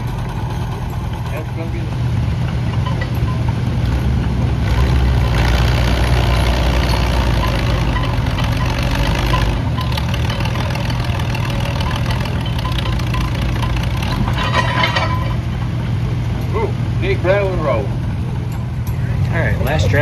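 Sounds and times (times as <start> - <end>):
tractor engine running hard: 0.0 - 20.0.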